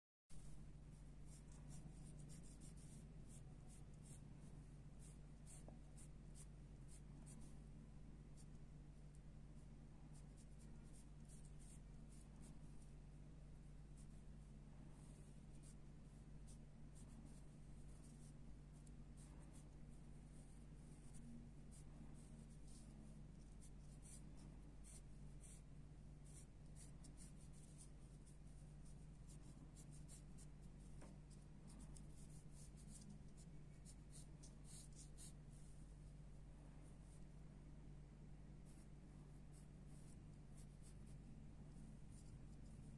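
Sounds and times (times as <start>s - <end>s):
steady low hum: 0.3s - 42.9s
pencil sketching on paper: 0.4s - 7.6s, 9.7s - 12.9s, 15.0s - 35.6s, 38.6s - 38.9s, 39.5s - 41.3s, 42.0s - 42.8s.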